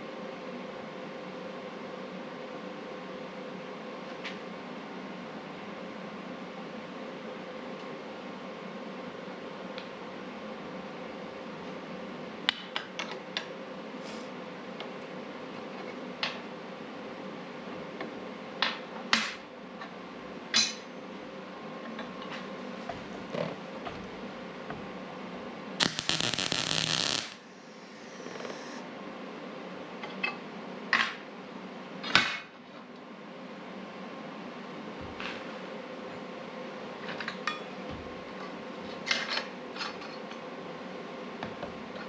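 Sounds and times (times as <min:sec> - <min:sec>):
background hum: 0:21.1 - 0:28.9
loud crackling hiss: 0:25.8 - 0:28.8.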